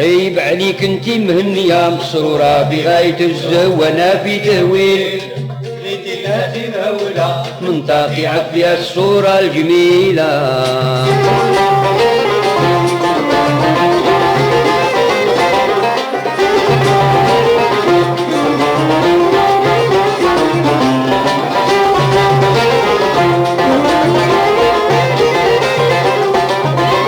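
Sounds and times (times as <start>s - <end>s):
plucked strings: 10.5s - 27.0s
violin melody: 11.0s - 27.0s.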